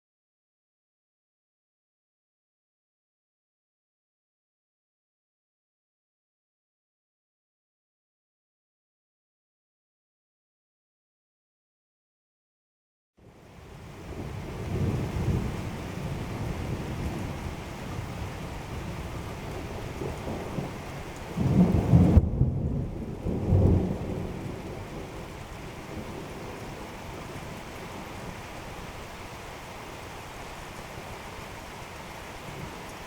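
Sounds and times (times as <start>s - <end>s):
steady rain: 13.2s - 33.0s
rolling thunder: 14.0s - 28.4s.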